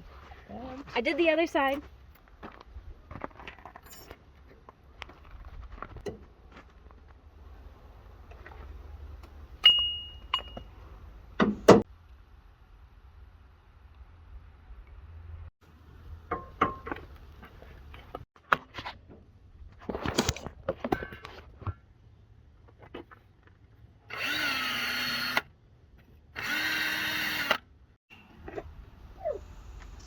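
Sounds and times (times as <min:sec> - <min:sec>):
power drill whining: 0:24.1 - 0:25.4, 0:26.4 - 0:27.6.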